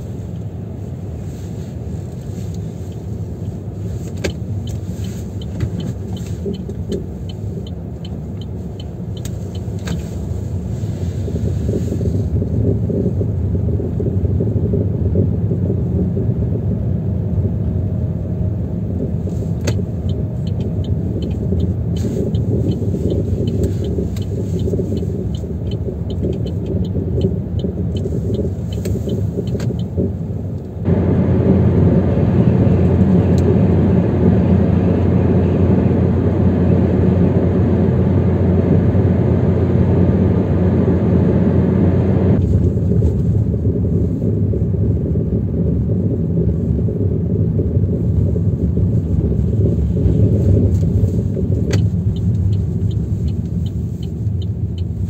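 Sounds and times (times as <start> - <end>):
low rumbling drone in car cabin: 0.0 - 55.0
light regular ticks: 2.1 - 10.5, 19.5 - 30.8, 50.7 - 55.0.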